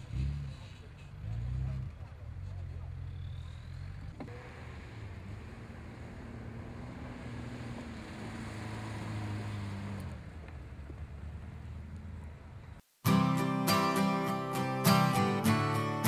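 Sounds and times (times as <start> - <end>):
off-road vehicle engine under load: 0.0 - 12.8.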